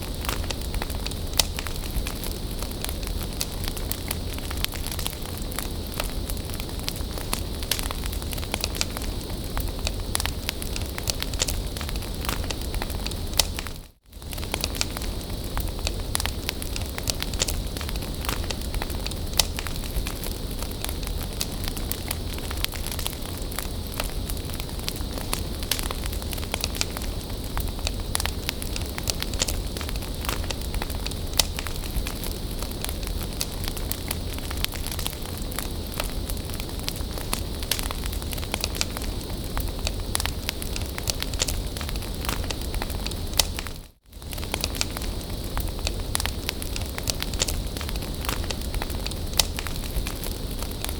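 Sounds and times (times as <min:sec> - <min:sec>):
bonfire crackling and popping: 0:00.0 - 0:50.9
low fire rumble: 0:00.0 - 0:50.9.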